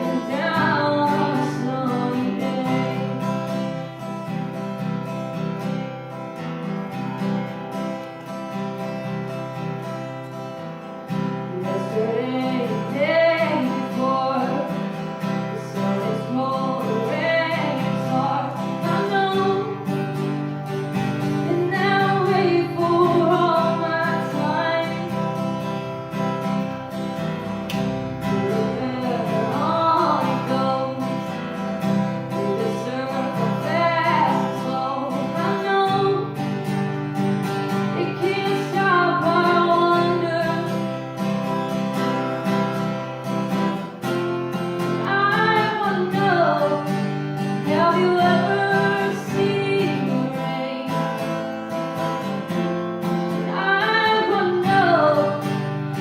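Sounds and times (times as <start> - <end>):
woman singing: 0.0 - 3.8, 11.4 - 20.3, 21.2 - 25.6, 28.2 - 31.6, 32.2 - 36.7, 37.7 - 41.1, 44.8 - 51.4, 53.3 - 56.0
acoustic guitar strumming: 0.0 - 56.0.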